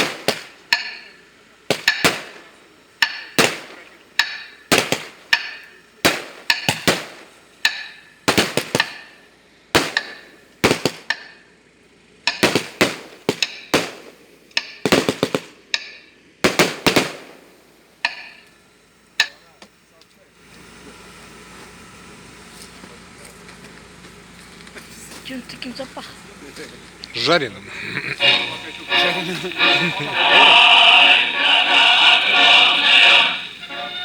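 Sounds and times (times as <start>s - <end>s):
firework bangs echoing: 0.0s - 9.2s, 9.8s - 11.4s, 12.3s - 15.7s, 16.4s - 18.4s.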